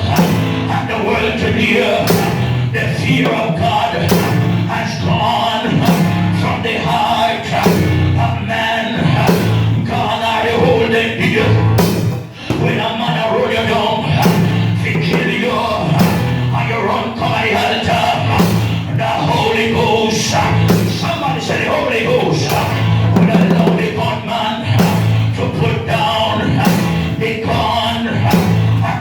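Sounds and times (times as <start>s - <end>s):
live band music: 0.0s - 8.2s, 10.8s - 12.9s
person singing: 0.0s - 29.0s.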